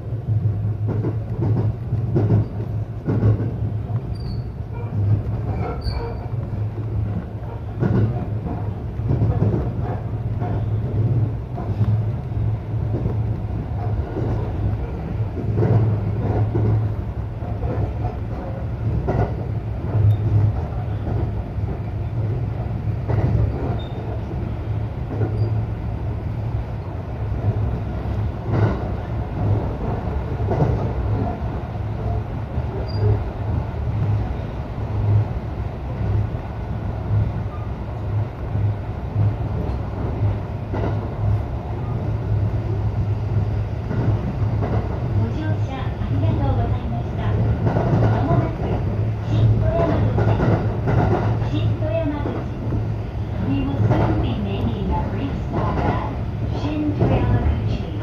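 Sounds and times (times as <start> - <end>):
train wheels rumbling on rail: 0.0 - 58.0
track knocks: 0.8 - 4.1, 4.7 - 12.1, 43.9 - 52.8.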